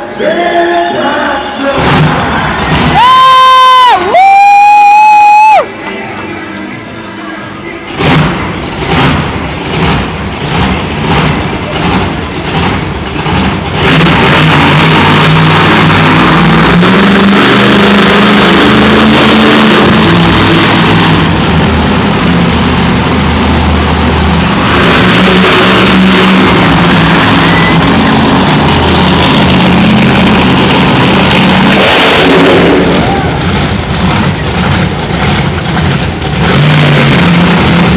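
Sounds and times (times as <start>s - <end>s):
monster truck engine revving: 1.5s - 5.7s, 7.8s - 37.9s.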